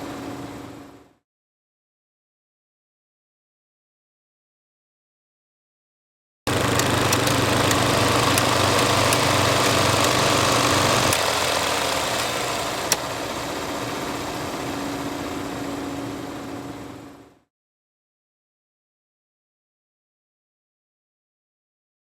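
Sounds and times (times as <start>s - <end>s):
film projector whirring: 6.5s - 17.4s.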